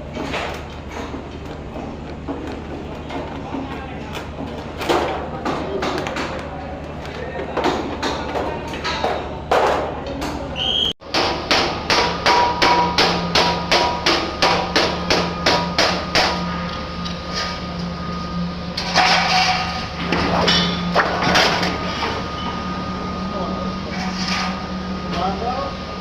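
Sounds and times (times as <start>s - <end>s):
hammer striking sheet metal: 11.0s - 16.5s.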